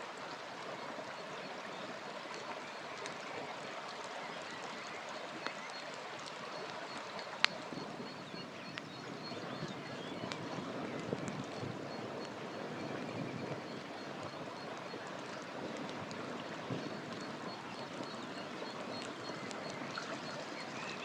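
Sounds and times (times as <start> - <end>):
campfire crackling and popping: 5.4 - 8.9, 10.2 - 19.9.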